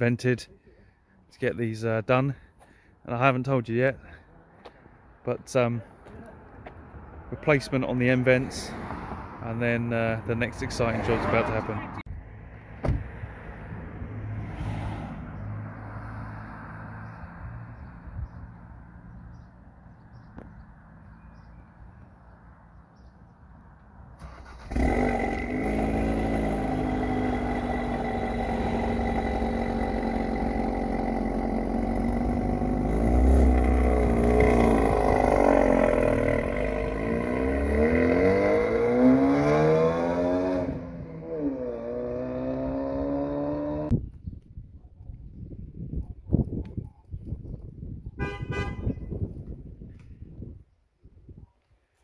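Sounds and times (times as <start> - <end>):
car engine starting: 24.2 - 41.1
car engine idling and revving: 24.2 - 43.9.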